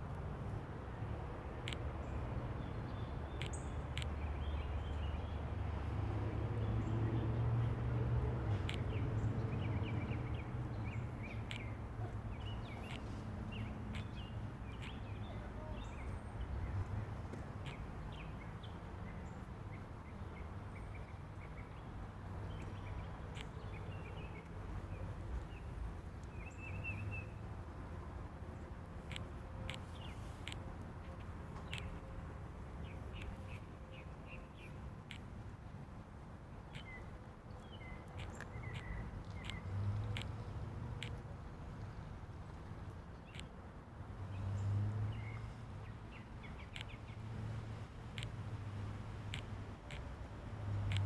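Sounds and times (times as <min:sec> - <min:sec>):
sharp ticks: 0:01.6 - 0:01.9, 0:08.7 - 0:09.0, 0:11.3 - 0:11.8, 0:13.9 - 0:15.0, 0:29.0 - 0:32.0, 0:35.0 - 0:35.3, 0:38.1 - 0:41.2, 0:43.2 - 0:43.6, 0:46.6 - 0:47.1, 0:48.1 - 0:48.4, 0:49.3 - 0:50.1, 0:50.8 - 0:51.0
mockingbirds chirping: 0:08.7 - 0:16.9, 0:17.6 - 0:35.5, 0:36.6 - 0:41.2, 0:43.1 - 0:43.5, 0:44.3 - 0:48.4.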